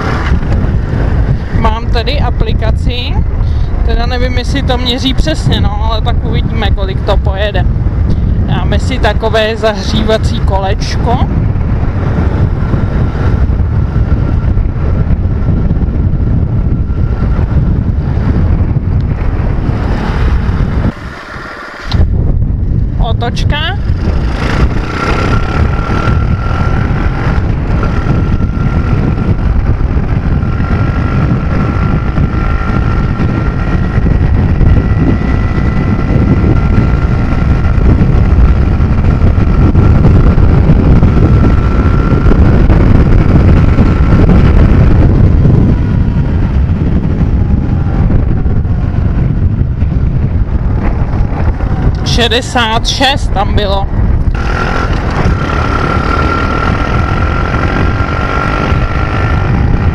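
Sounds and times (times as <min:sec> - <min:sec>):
motorbike engine at full throttle: 0:00.0 - 0:59.9
wind buffeting microphone: 0:00.0 - 0:59.9.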